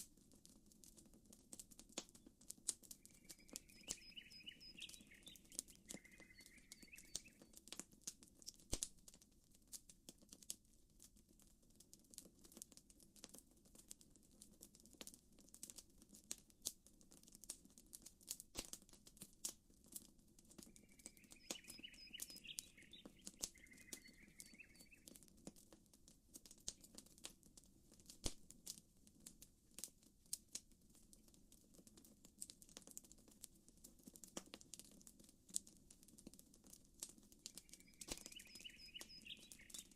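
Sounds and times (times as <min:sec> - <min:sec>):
campfire crackling: 0:00.0 - 0:39.9
short chirping call: 0:03.1 - 0:07.4, 0:20.7 - 0:25.0, 0:37.6 - 0:39.9.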